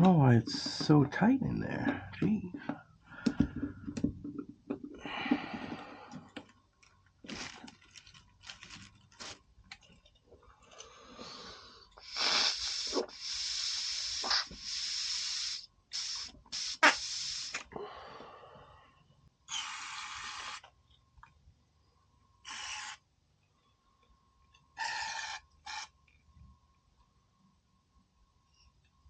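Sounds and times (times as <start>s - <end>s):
hissing spray blasts: 12.0s - 17.6s.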